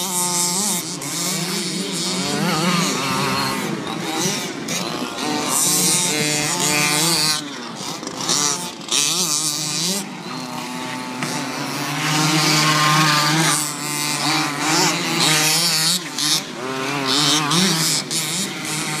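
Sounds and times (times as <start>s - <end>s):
toy car motor revving: 0.0s - 19.0s.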